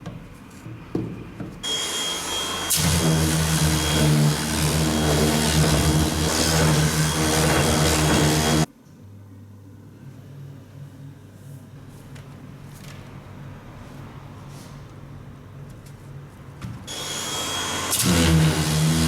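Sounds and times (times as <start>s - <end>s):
power tool grinding: 1.6s - 8.7s, 16.9s - 19.0s.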